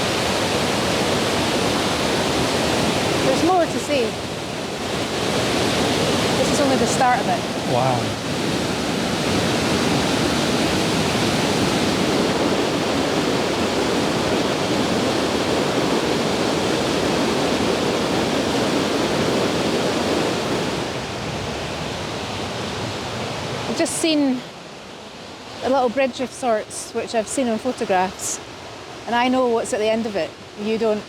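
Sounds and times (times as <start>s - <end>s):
waterfall roaring: 0.0s - 24.5s.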